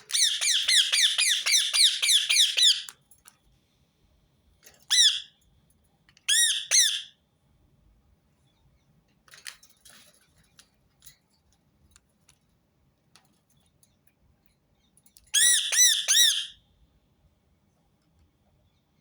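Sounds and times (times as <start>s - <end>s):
parakeet shrill squawks: 0.1s - 2.9s, 4.9s - 5.3s, 6.3s - 7.1s, 15.4s - 16.6s.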